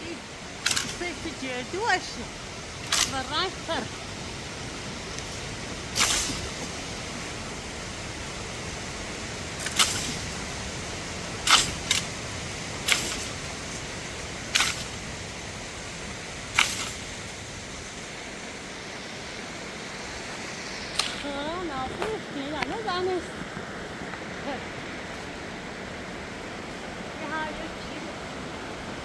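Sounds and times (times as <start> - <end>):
waterfall rushing: 0.0 - 29.0
sharp clicks: 0.6 - 1.2, 2.8 - 3.4, 16.6 - 17.1, 20.9 - 21.4.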